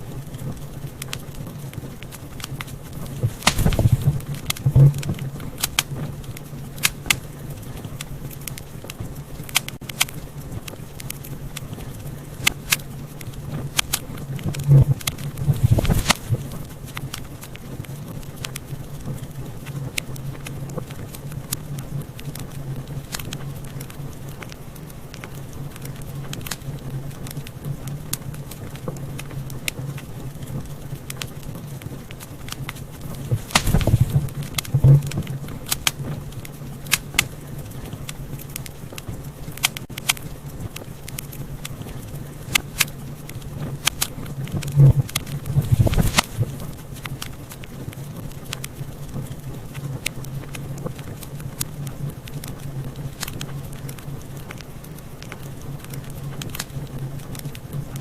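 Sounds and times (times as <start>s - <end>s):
steady low hum: 0.0s - 58.0s
wood fire crackling and popping: 0.0s - 58.0s.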